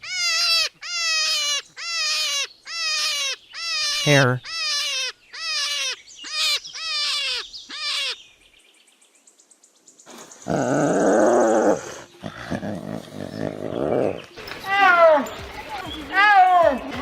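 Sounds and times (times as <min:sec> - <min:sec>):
hare calling: 0:00.0 - 0:08.2.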